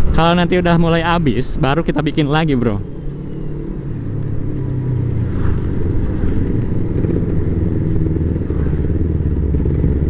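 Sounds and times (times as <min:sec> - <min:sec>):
motorcycle engine running: 0:02.8 - 0:10.0.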